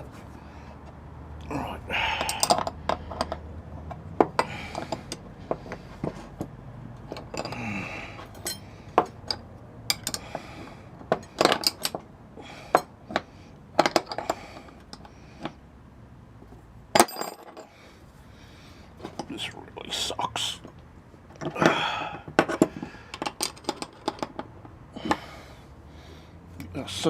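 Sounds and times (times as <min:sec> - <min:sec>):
spanners clinking on metal: 0:02.1 - 0:03.4, 0:07.1 - 0:10.3, 0:17.0 - 0:17.7.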